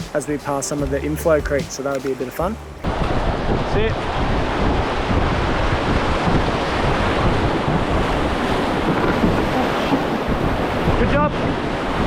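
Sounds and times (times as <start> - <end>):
whitewater rushing: 0.0 - 12.0
wind buffeting microphone: 2.4 - 12.0.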